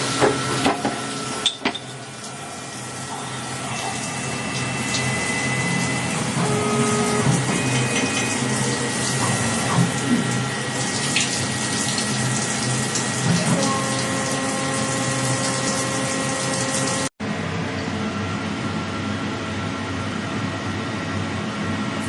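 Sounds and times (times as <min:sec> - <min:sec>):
lathe running: 0:02.7 - 0:17.1.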